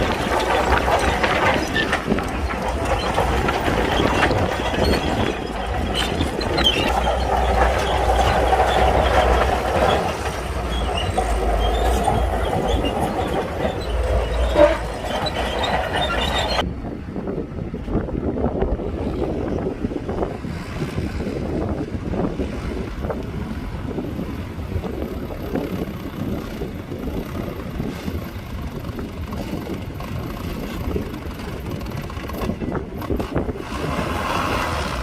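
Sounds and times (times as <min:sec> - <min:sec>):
steel tracks clanking: 0:00.0 - 0:16.7, 0:23.9 - 0:35.0
bulldozer diesel engine rumbling: 0:00.0 - 0:35.0.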